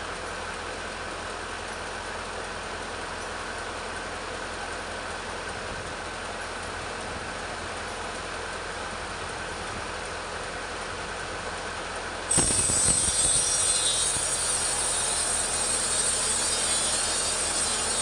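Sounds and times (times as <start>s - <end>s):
chainsaw cutting wood: 12.3s - 18.0s
high chainsaw whine: 12.3s - 18.0s.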